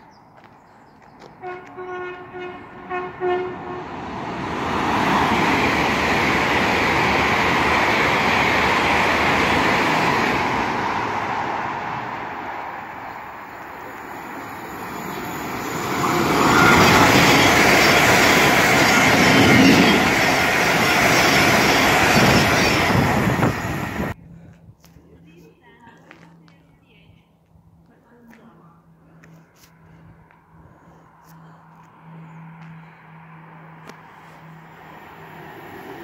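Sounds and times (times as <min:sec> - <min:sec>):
express train rushing past: 0:01.4 - 0:24.2, 0:32.4 - 0:36.0
electric train passing close: 0:01.9 - 0:24.2, 0:32.0 - 0:36.0.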